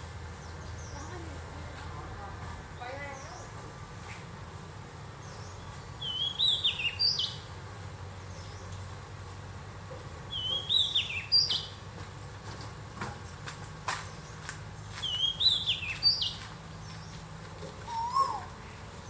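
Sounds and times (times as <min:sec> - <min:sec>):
songbird warbling: 0:05.2 - 0:07.5, 0:10.3 - 0:11.8, 0:15.0 - 0:19.0.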